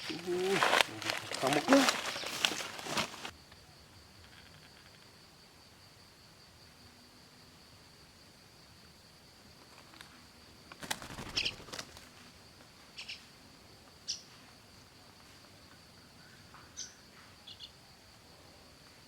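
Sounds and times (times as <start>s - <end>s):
clicks and rustling: 0.0s - 3.3s.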